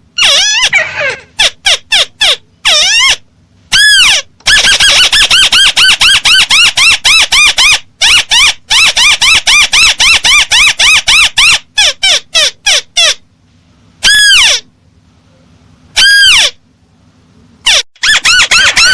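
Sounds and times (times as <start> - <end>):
recorded bird lure call: 17.7 - 18.9.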